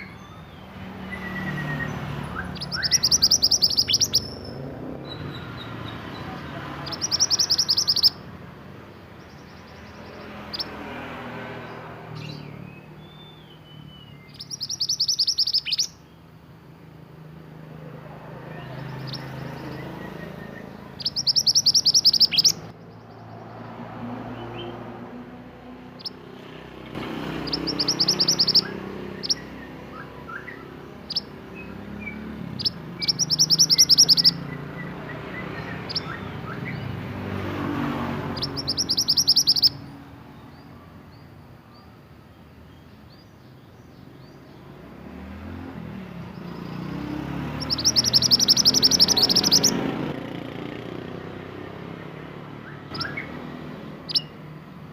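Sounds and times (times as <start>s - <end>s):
bird single chirps: 0.0s - 8.3s, 9.2s - 10.9s, 11.6s - 16.3s, 18.6s - 23.4s, 26.9s - 37.0s, 38.2s - 42.0s, 45.4s - 49.8s, 52.6s - 54.4s
songbird rapid high trill: 0.0s - 8.5s, 9.2s - 16.3s, 18.4s - 23.2s, 27.0s - 40.7s, 46.2s - 50.1s, 52.6s - 54.6s.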